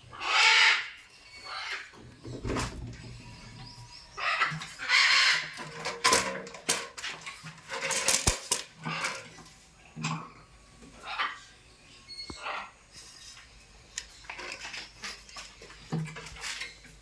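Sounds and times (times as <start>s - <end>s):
parrot squawking: 0.1s - 1.9s, 3.6s - 5.6s, 11.0s - 11.5s, 12.1s - 12.8s
sharp clicks and clatters: 5.8s - 9.2s.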